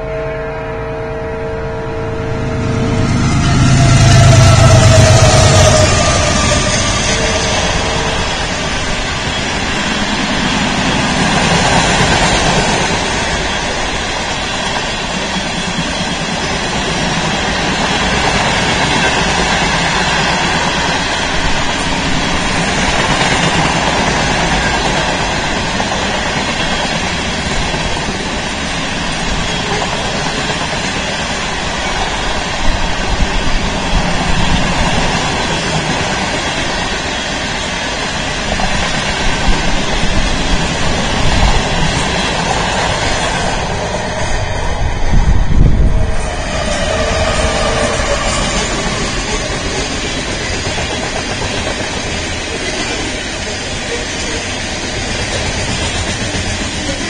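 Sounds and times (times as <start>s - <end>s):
freight train wheels on rails: 1.2s - 57.0s.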